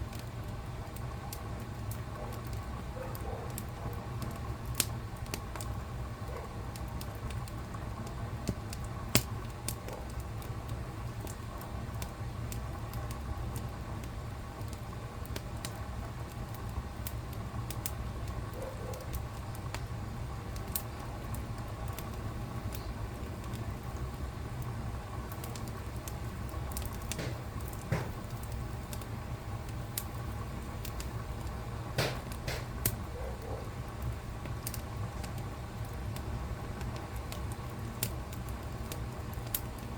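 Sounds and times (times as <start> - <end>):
fire pops and snaps: 0.0 - 5.9, 6.7 - 39.9
wood fire crackling: 0.0 - 39.9.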